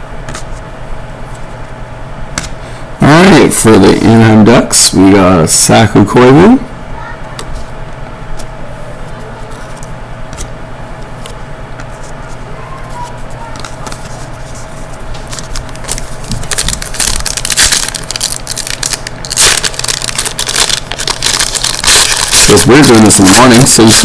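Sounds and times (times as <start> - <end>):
steady low hum: 0.0 - 24.0
wrapper crinkling and tearing: 15.2 - 24.0.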